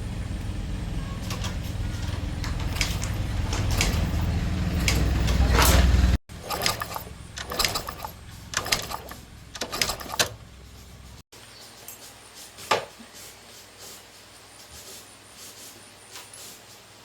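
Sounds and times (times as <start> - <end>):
metal parts clattering: 6.4 - 10.4
sharp click: 6.5 - 10.4.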